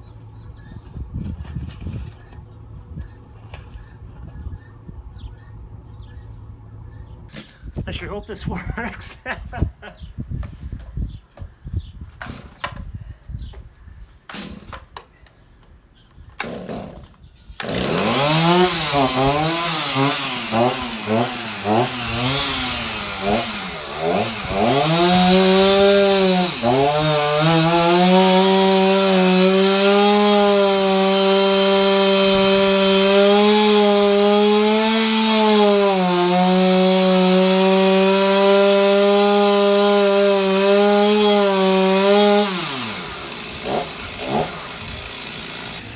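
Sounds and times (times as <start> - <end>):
chainsaw revving: 16.4 - 45.9.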